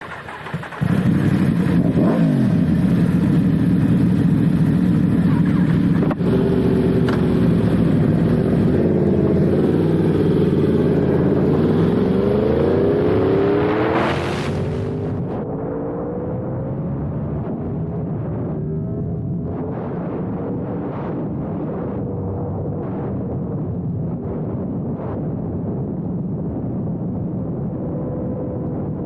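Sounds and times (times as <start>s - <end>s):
motorcycle engine revving: 0.0s - 15.4s.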